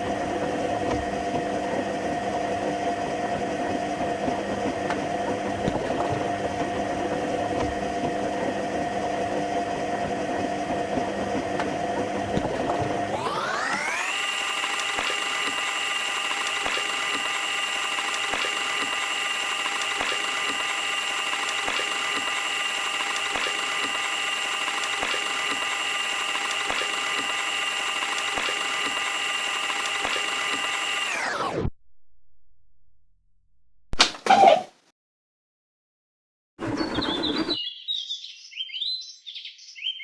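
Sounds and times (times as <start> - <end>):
washing machine motor whine: 0.0 - 31.7.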